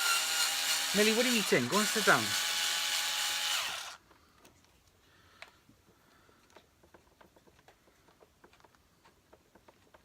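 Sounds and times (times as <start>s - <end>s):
electric drill-driver running: 0.0s - 4.0s.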